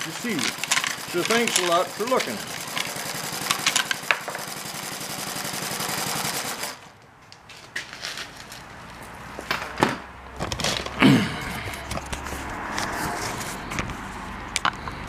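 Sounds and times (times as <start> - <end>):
model engine running: 0.0 - 6.9.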